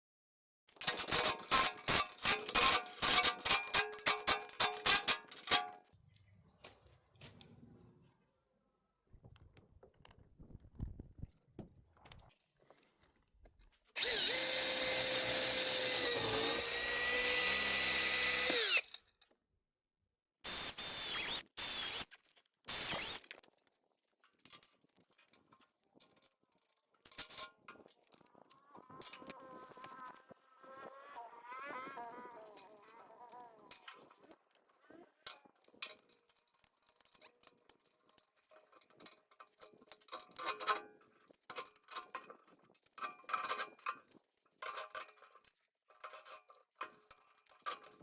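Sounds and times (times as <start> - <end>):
power drill running: 14.0 - 19.0, 20.5 - 22.1, 22.7 - 23.2.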